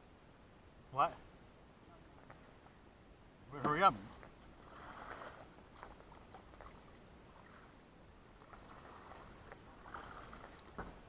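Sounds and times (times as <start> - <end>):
paddle swishing through water: 3.8 - 11.0
light knocks against boat: 10.6 - 11.0.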